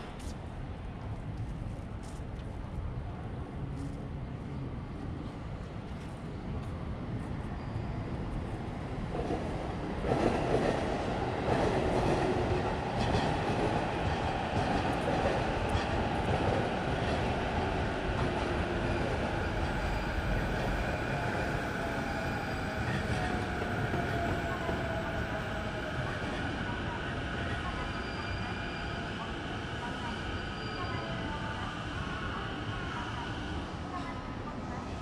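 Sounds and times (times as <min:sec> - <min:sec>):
train wheels rumbling on rail: 0:05.1 - 0:31.1.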